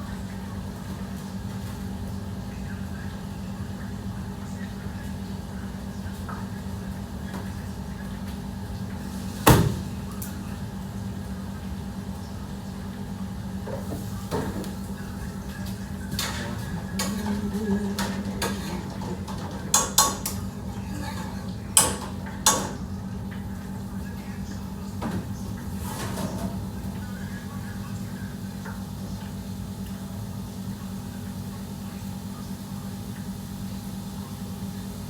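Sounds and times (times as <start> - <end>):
pots and pans clattering: 15.6 - 22.9, 25.0 - 26.9.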